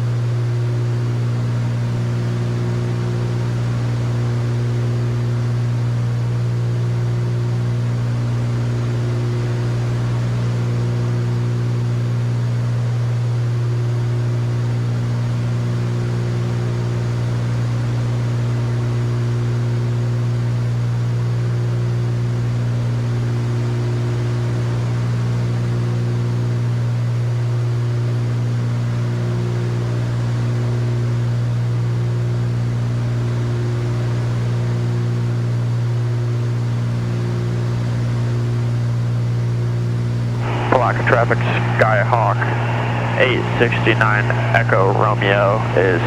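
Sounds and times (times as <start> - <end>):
aircraft engines droning: 0.0 - 46.0.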